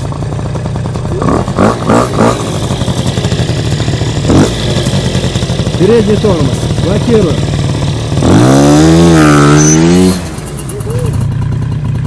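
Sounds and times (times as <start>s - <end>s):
scooter engine running: 0.0s - 12.0s
engine throttle blips: 0.8s - 12.0s.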